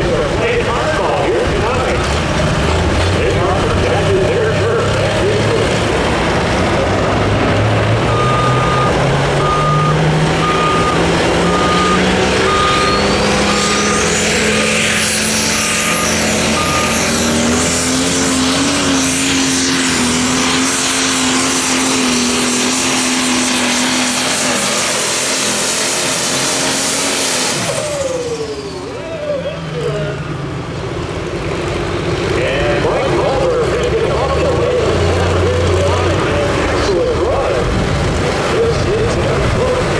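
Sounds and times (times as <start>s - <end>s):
diesel tractor engine under load: 0.0s - 39.9s
short beeps: 8.1s - 14.2s, 15.8s - 17.1s
high turbo whistle: 8.1s - 17.6s.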